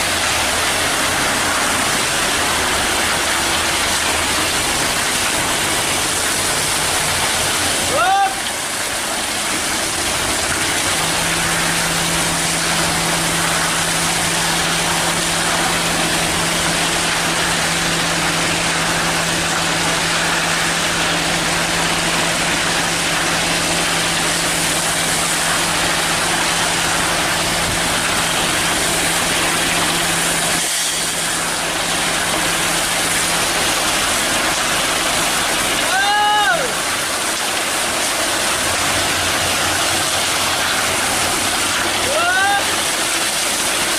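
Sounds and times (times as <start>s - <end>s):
cement mixer truck running: 0.0s - 43.9s.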